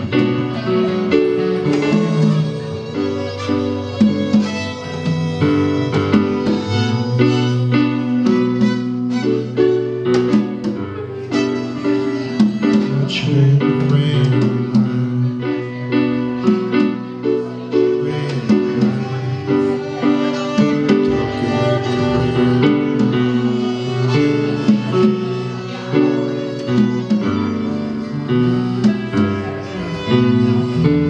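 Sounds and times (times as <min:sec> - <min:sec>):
sustained melodic instrument lines: 0:15.0 - 0:31.0.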